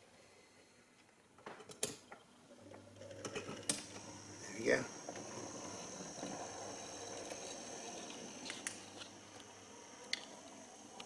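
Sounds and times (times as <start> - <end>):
model train motor whirring: 3.3 - 11.0.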